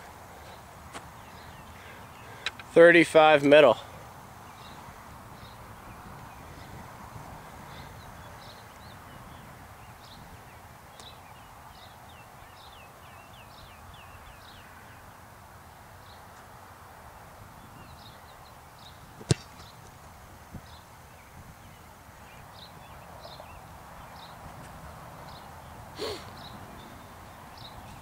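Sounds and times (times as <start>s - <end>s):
outdoor background hiss: 0.0s - 28.0s
small birds chirping: 0.3s - 16.5s, 17.2s - 28.0s.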